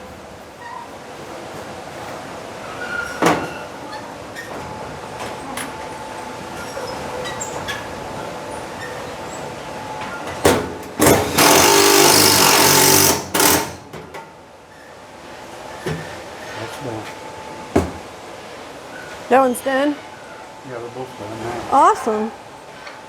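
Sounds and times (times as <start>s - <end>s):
power drill running: 11.0s - 13.9s.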